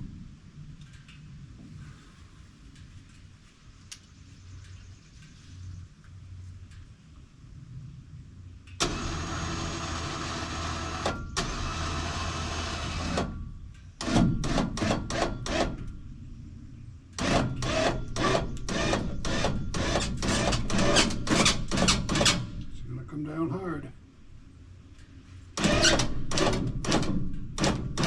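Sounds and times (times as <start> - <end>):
winch motor running: 8.8 - 16.0, 17.2 - 22.8, 25.6 - 28.0.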